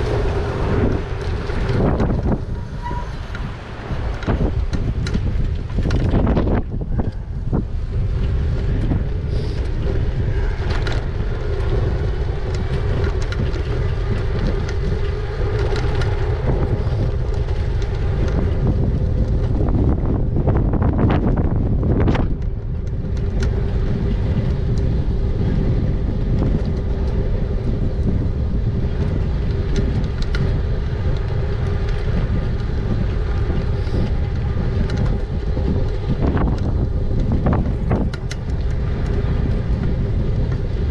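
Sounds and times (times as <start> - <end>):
steady motor hum: 0.0 - 40.9
wind on microphone: 0.0 - 40.9.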